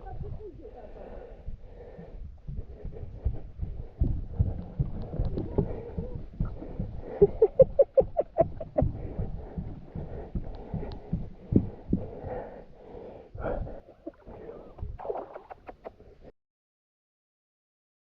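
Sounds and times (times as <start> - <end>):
water splashing and sloshing: 13.9 - 16.0.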